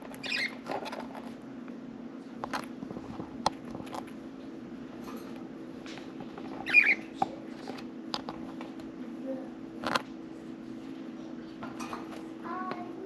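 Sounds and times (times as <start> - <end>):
steady low hum: 0.0 - 13.0
budgerigars squeaking and clicking: 0.2 - 0.6, 6.6 - 7.1
wavering bird chirp: 0.2 - 0.6, 6.6 - 7.2.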